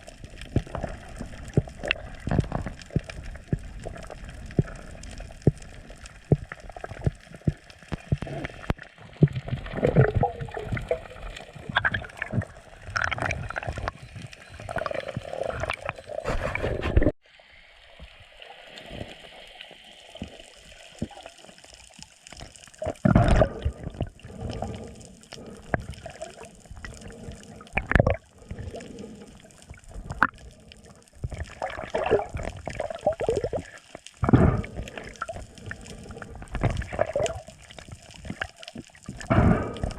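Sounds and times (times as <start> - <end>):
water sloshing and gurgling: 0.0 - 17.2, 17.8 - 39.9.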